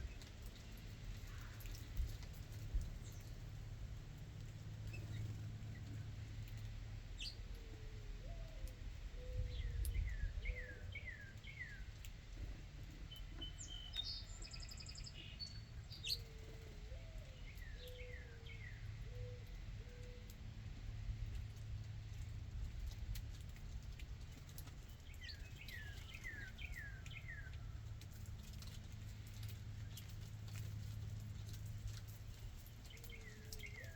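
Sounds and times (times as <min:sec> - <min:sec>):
higher bird song: 0:07.2 - 0:12.2, 0:12.8 - 0:20.4, 0:24.3 - 0:33.9.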